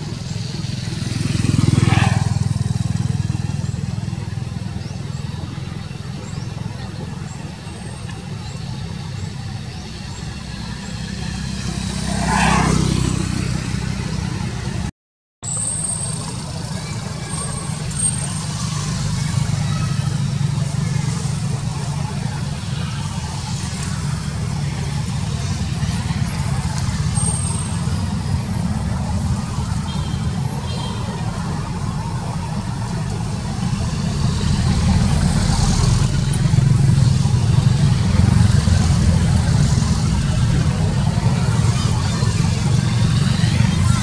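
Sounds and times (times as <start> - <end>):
low traffic rumble: 0.0 - 44.0
vehicle passing close by: 0.4 - 4.4, 10.5 - 14.9.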